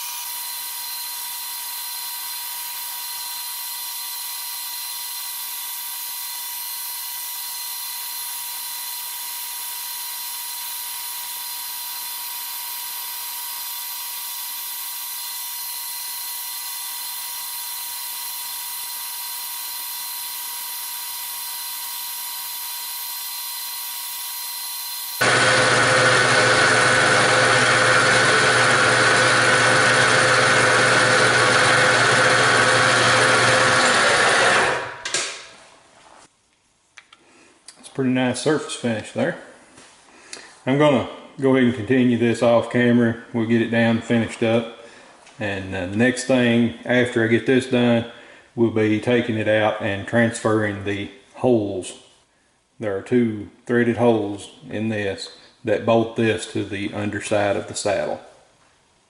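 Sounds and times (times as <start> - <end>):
milling machine whine: 0.0 - 35.0.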